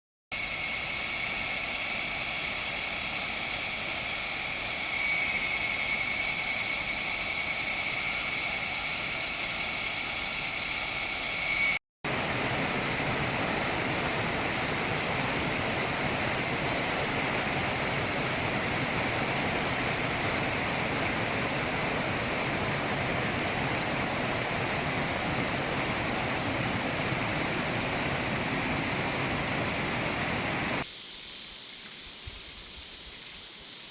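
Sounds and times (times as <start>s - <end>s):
thin high tone: 0.4s - 11.8s
waterfall rushing: 12.1s - 30.8s.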